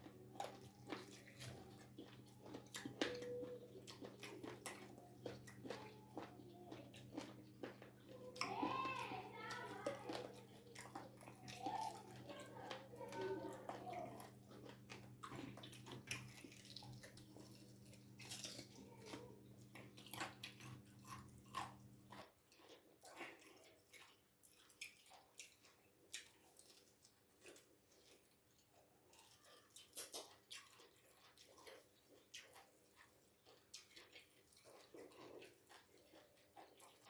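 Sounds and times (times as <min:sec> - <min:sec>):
crunching on bones: 0:00.0 - 0:28.6
chewing and smacking: 0:00.0 - 0:37.0.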